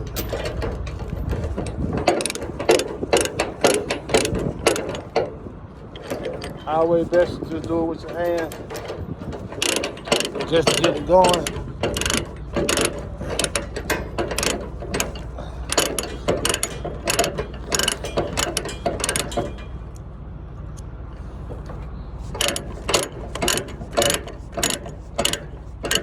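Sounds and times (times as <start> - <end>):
steady low hum: 0.0 - 26.0
ratchet pawl clicking: 1.0 - 5.3, 8.2 - 19.6, 22.3 - 26.0.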